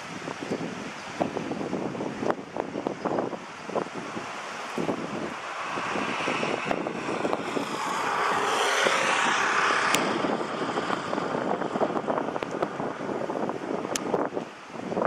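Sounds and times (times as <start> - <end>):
wind buffeting microphone: 0.0 - 15.0
road vehicle passing: 3.6 - 13.9.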